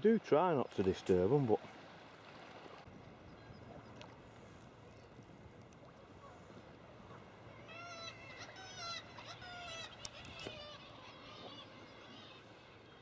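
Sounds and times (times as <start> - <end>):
faint wash of water: 0.6 - 8.8
seabird calling: 0.9 - 13.0.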